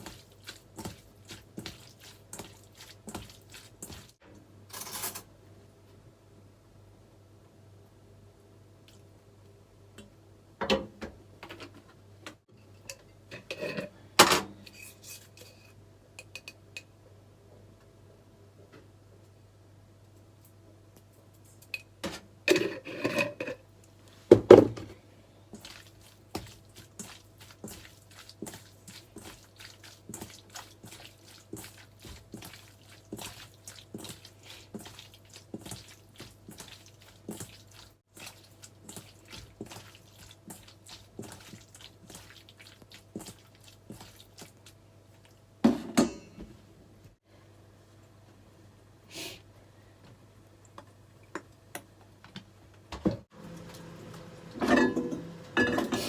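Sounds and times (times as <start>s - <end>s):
utensils and cookware clattering: 4.7s - 5.3s, 12.9s - 16.6s, 21.7s - 23.6s, 45.7s - 46.4s, 54.6s - 56.0s.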